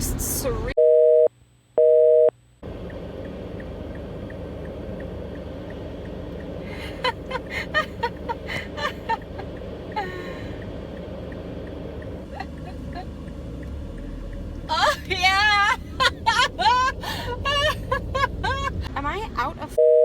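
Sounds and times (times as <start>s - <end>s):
telephone busy signal beeps: 0.8s - 2.3s, 19.8s - 20.0s.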